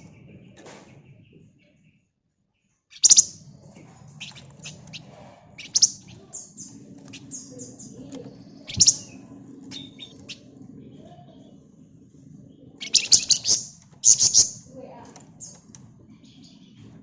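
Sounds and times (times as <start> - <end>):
songbird sharp high chirps: 2.9 - 3.4, 4.2 - 10.4, 12.8 - 14.7
songbird twittering: 2.9 - 3.5, 4.1 - 11.6, 12.5 - 14.7.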